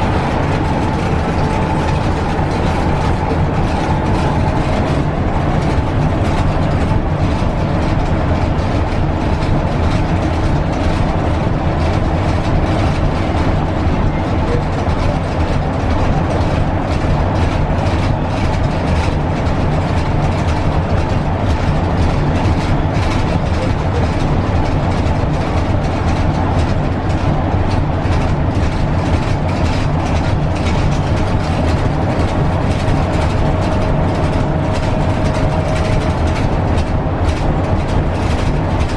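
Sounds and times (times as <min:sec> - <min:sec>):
bus engine and track rumble: 0:00.0 - 0:38.9.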